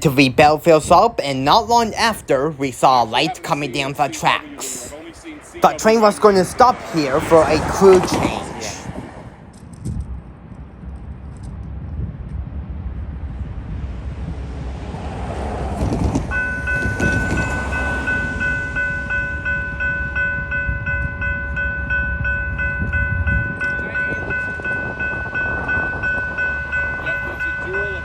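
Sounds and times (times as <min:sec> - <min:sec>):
railroad crossing bell ringing: 0:00.0 - 0:08.8, 0:16.3 - 0:28.0
train rumble: 0:00.0 - 0:28.0.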